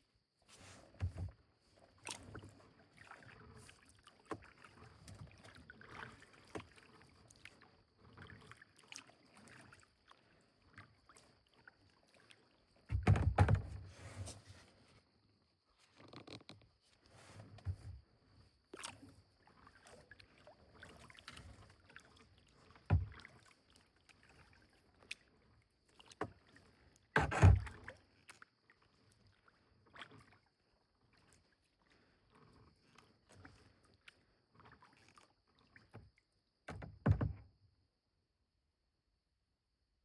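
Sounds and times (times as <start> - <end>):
paddle dipping and dripping water: 0.4 - 14.4, 15.8 - 37.6
paddle knocking against boat: 0.9 - 1.4, 12.9 - 14.0, 22.8 - 23.3, 27.2 - 27.8, 36.7 - 37.5.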